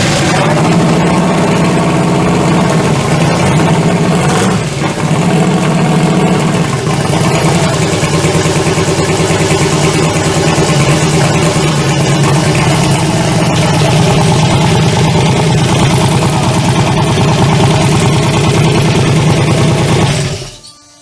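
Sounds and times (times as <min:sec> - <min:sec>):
engine idling: 0:00.0 - 0:20.6.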